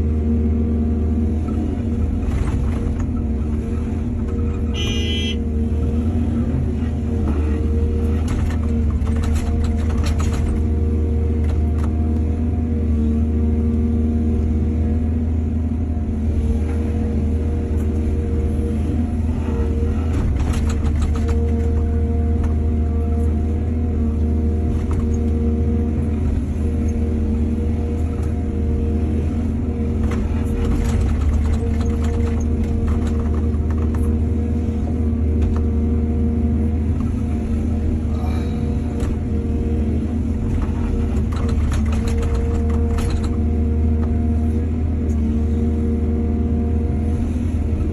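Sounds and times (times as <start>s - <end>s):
excavator diesel engine: 0.0s - 47.9s
clatter and rattling: 8.1s - 10.7s, 20.1s - 21.9s, 30.0s - 34.2s, 40.4s - 43.5s.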